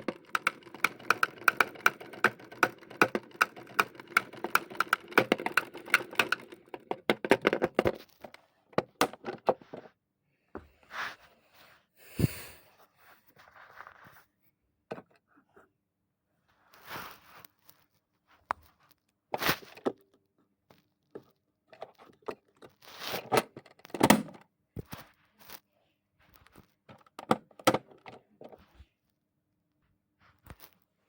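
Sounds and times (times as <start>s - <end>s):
wheels knocking in washing machine drum: 0.0s - 7.9s.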